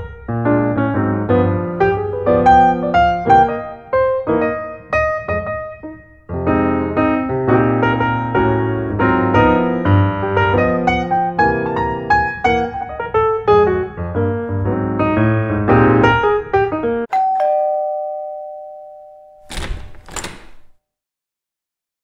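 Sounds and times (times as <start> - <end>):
piano music: 0.0 - 20.2
two-tone doorbell chime: 17.1 - 19.6.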